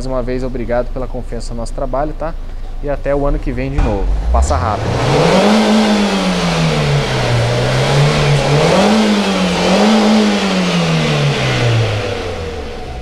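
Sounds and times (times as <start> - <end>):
car engine revving: 3.1 - 13.0.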